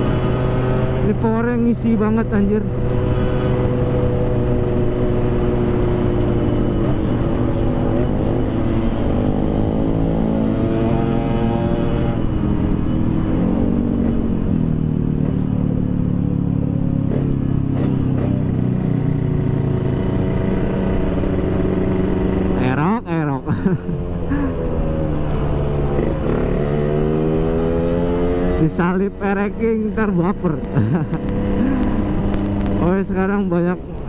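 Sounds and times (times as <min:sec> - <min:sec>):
two-stroke motorcycle engine revving: 0:00.0 - 0:33.8.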